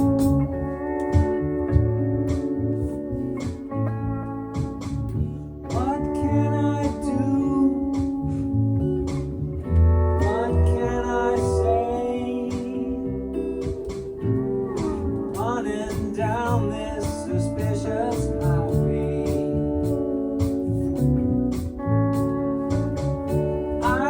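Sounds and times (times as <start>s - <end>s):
band playing instrumental rock: 0.0s - 24.0s.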